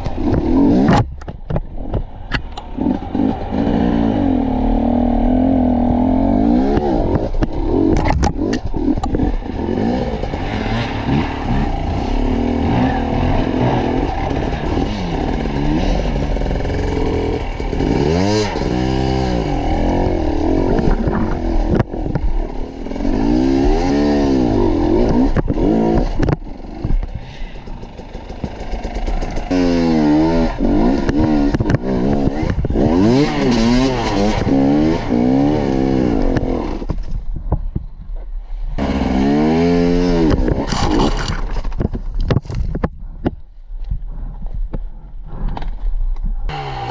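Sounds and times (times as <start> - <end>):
motorcycle engine revving: 0.0 - 37.2, 38.7 - 42.6, 46.4 - 46.9
knocks and clatter: 40.2 - 43.4.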